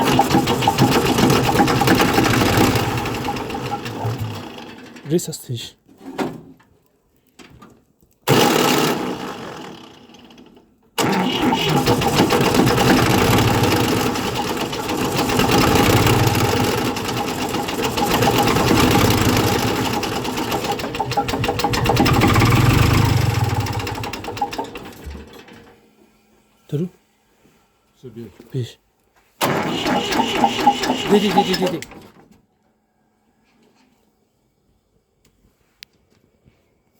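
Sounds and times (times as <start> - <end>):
engine cold-starting and running: 0.0 - 5.1, 8.3 - 25.8, 29.4 - 32.3.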